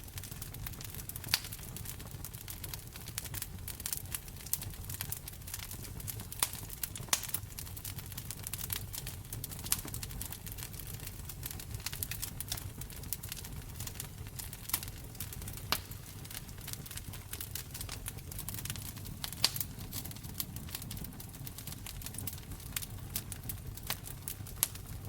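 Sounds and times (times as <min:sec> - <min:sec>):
low rumble of flame: 0:00.0 - 0:25.0
wood fire snapping and popping: 0:00.0 - 0:25.0.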